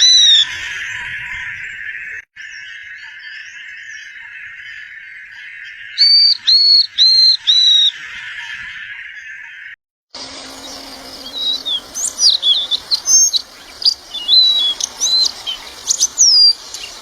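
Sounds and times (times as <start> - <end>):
bird whistling: 6.0 - 8.5, 10.4 - 17.0
high-pitched buzzing hiss: 10.2 - 17.0.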